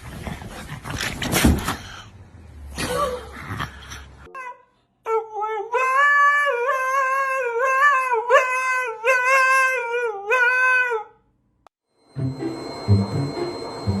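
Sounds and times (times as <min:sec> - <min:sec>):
dog howling: 0:05.1 - 0:11.2.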